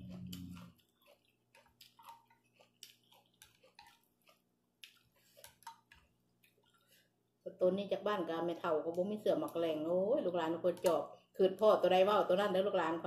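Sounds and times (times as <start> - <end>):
faint chewing and lip smacks: 0.0 - 7.4.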